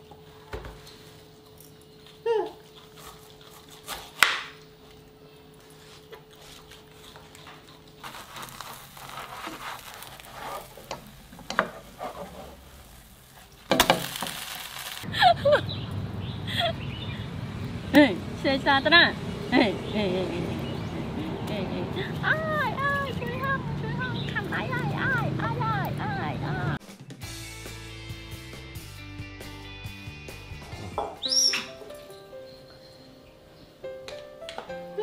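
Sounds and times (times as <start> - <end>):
batter sizzling in frying pan: 8.0 - 15.1
short high calls: 31.2 - 31.8.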